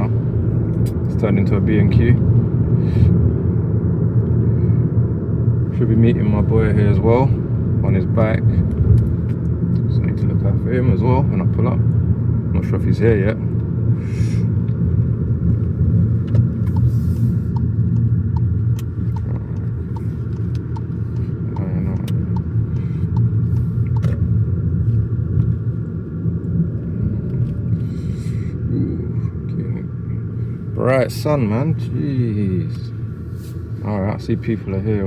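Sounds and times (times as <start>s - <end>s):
car engine and road noise: 0.0s - 35.0s
light ticking: 16.2s - 16.9s, 17.5s - 24.3s.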